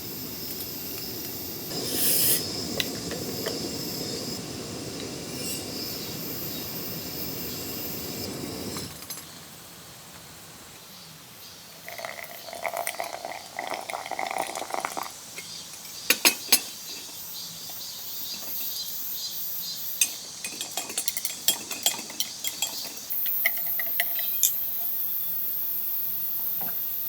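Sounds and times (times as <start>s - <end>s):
steady hiss: 0.0s - 27.0s
dishes and utensils clinking: 14.9s - 17.2s, 20.0s - 24.9s.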